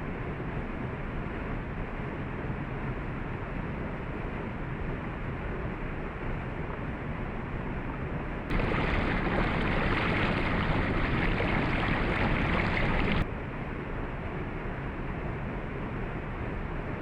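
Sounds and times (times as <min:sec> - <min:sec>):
waterfall rushing: 0:08.5 - 0:13.2.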